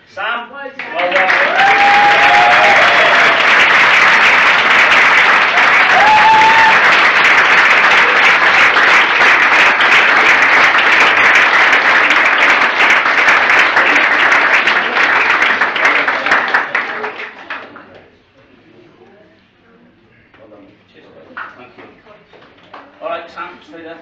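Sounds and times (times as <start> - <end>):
audience applauding: 0.8 - 18.0
person cheering: 0.9 - 3.5, 5.5 - 7.1.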